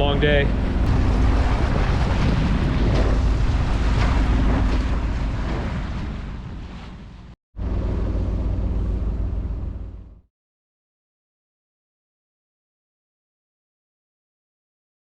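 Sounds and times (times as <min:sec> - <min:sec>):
wind on microphone: 0:00.0 - 0:09.9
water noise: 0:00.0 - 0:10.2
boat diesel engine running: 0:00.0 - 0:10.3.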